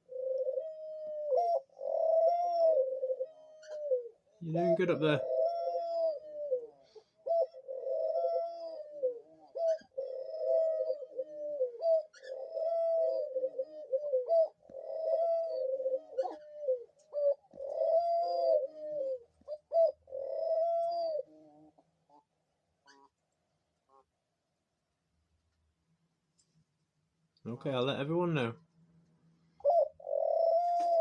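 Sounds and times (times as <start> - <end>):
dove cooing: 0.0 - 23.2, 29.5 - 31.0.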